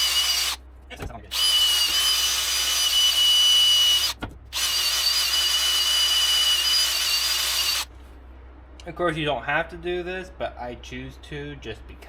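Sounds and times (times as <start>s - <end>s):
power drill whining: 0.0s - 0.6s, 1.3s - 7.9s.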